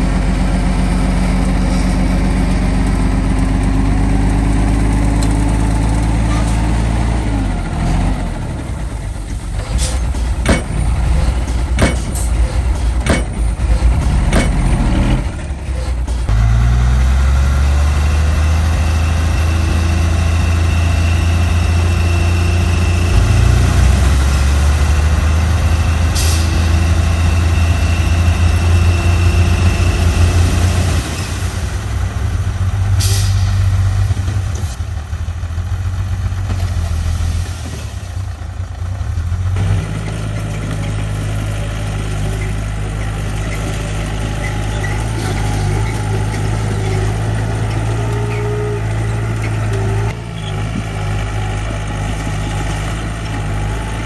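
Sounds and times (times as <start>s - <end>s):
heavy diesel engine revving: 0.0s - 54.0s
sharp metallic knocks: 9.6s - 15.2s.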